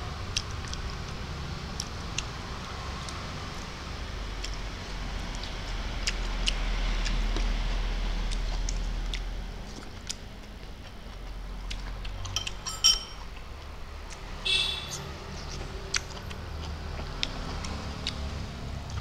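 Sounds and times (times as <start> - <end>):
man chewing with lip smacks: 0.2 - 3.7, 4.4 - 12.4, 15.4 - 19.0
low steady hum: 7.1 - 15.8.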